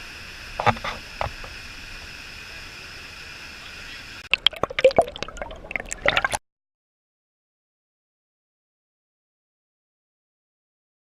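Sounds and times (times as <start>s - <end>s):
steady background hiss: 0.0s - 6.0s
water splashing and dripping: 4.3s - 6.4s.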